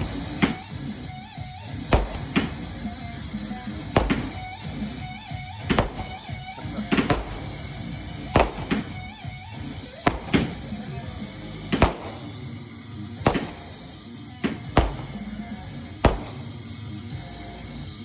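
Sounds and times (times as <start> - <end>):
firework bangs: 0.0 - 1.2, 1.9 - 3.1, 3.8 - 5.0, 5.6 - 9.4, 10.0 - 10.9, 11.8 - 12.4, 13.3 - 16.6.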